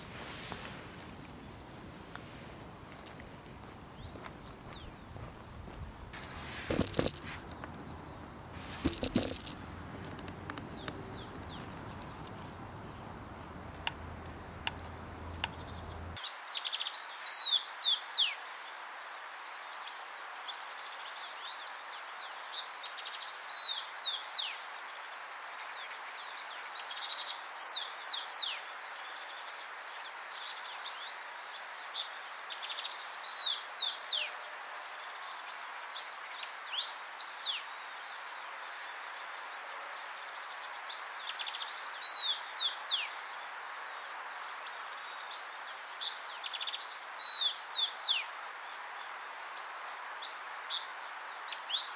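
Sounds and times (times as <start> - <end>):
background hiss: 0.0 - 23.2
sharp clicks: 6.2 - 16.2
bird whistling song: 9.6 - 16.2.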